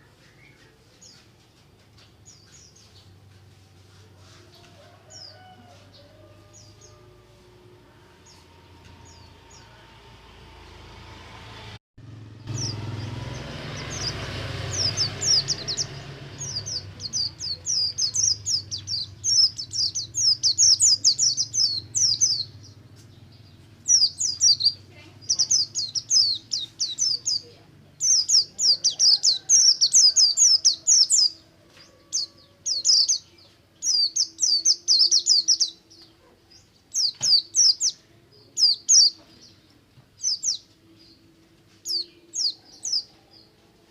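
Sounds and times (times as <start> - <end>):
bird twittering song: 12.4 - 43.6.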